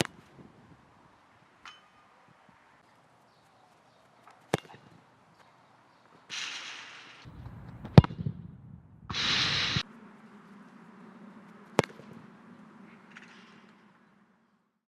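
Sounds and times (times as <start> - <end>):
ball hitting metal crossbar: 4.5 - 4.9, 6.3 - 8.4
short bursts of hiss: 9.1 - 9.9.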